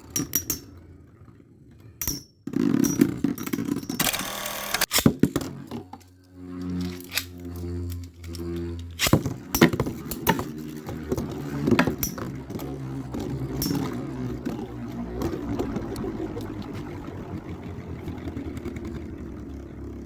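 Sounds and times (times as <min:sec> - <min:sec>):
whirring hum of spinning tops: 0:00.0 - 0:20.0
spinning tops clacking: 0:06.6 - 0:18.8.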